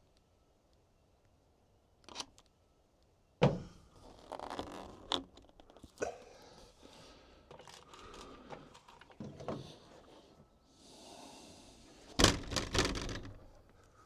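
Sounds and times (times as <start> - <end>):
loud clatter of knocks: 12.2 - 13.6.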